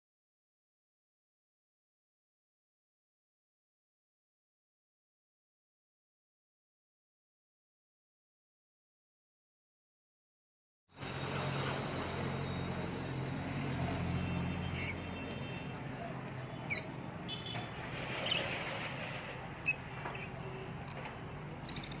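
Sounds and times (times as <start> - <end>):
sharp bird chirps: 21.6 - 22.0.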